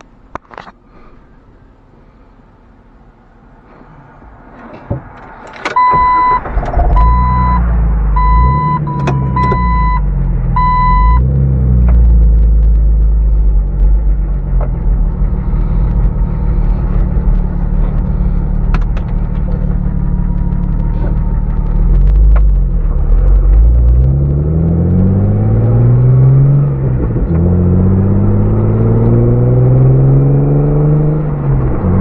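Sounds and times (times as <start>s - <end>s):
car engine running: 0.0s - 32.0s
engine cranking and starting: 4.6s - 10.0s, 13.7s - 25.0s
dashboard warning chime: 5.8s - 6.4s, 7.0s - 7.6s, 8.2s - 10.0s, 10.6s - 11.2s.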